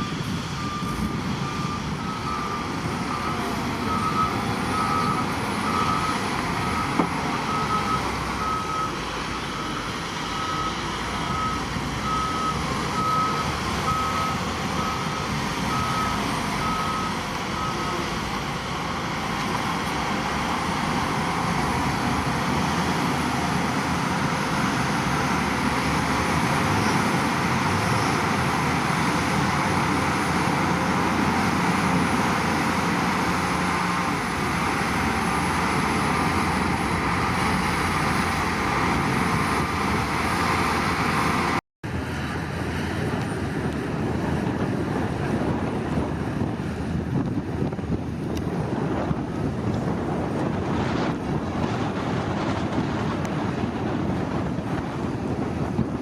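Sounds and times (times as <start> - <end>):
reversing alarm beeping: 0.0 - 18.6
diesel engine running: 0.0 - 56.0.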